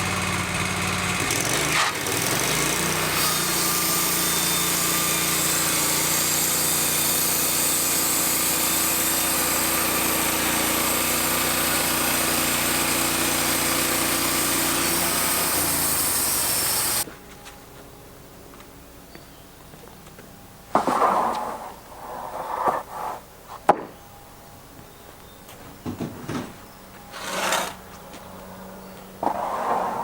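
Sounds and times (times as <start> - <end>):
sawmill engine running: 0.0 - 17.1, 27.0 - 28.5
band blade sawing through log: 1.4 - 17.0, 27.1 - 27.8.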